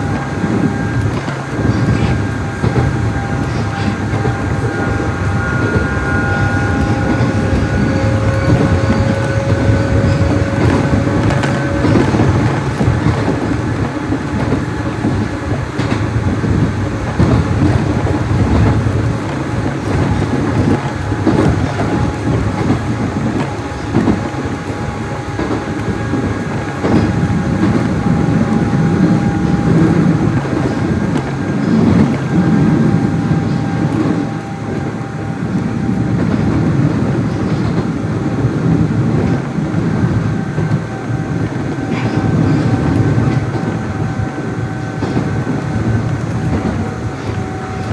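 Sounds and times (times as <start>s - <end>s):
clattering over rail joints: 0.0s - 34.8s
train wheels rumbling on rail: 0.0s - 47.9s.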